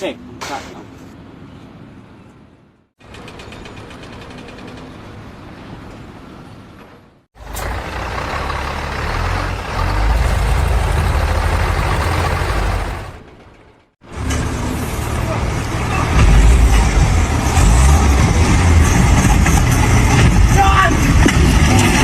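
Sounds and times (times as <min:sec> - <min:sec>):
heavy engine rumbling: 0:07.4 - 0:22.0.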